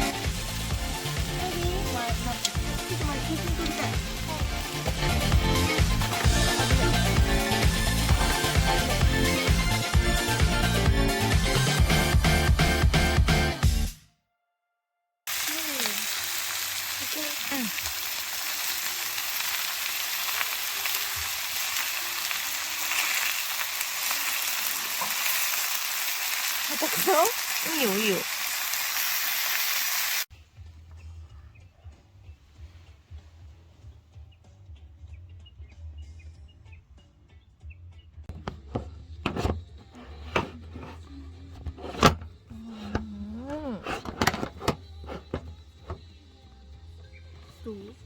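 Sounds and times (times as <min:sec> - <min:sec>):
rice sizzling in a pan: 0:15.3 - 0:30.3.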